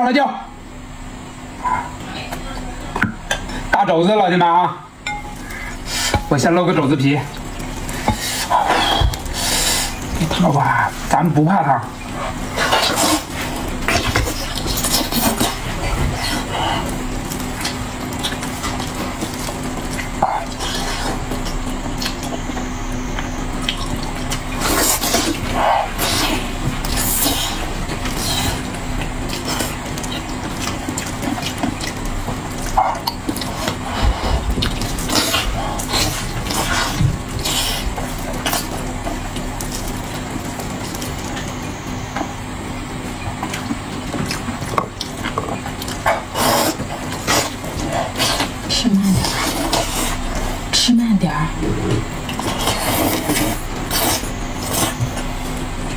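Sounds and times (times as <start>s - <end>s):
steady low hum: 0.0s - 55.9s
wet tearing and chewing: 12.1s - 41.6s.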